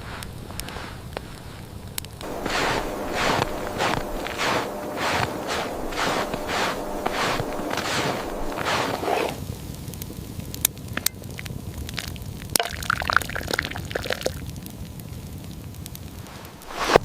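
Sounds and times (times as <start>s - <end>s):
low steady rumble: 2.2s - 9.0s
liquid pouring or dripping: 12.6s - 14.4s.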